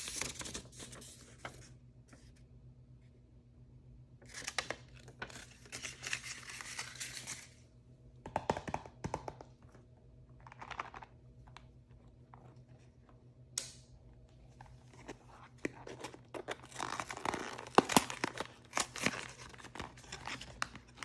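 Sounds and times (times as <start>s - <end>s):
packaging crinkling and tearing: 0.0s - 1.6s, 4.3s - 7.6s, 10.4s - 11.6s, 14.9s - 21.0s.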